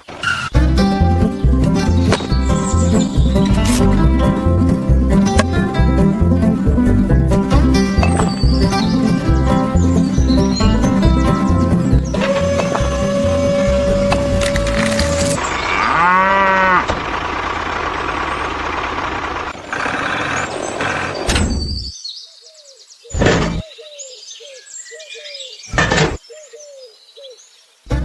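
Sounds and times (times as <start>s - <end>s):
cow mooing: 12.2s - 17.0s.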